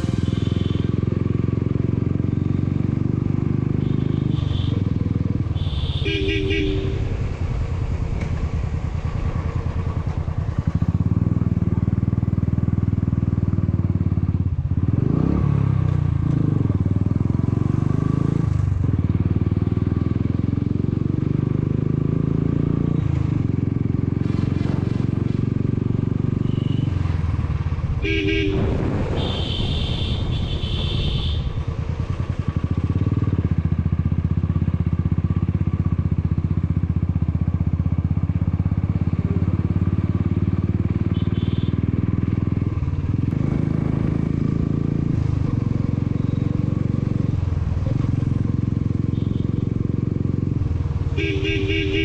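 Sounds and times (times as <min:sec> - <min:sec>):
motorcycle engine running: 0:00.0 - 0:52.0
horn beeping: 0:05.6 - 0:07.2, 0:28.0 - 0:31.5, 0:51.2 - 0:52.0
higher horn-like tone: 0:05.6 - 0:07.3, 0:28.0 - 0:31.5, 0:51.2 - 0:52.0.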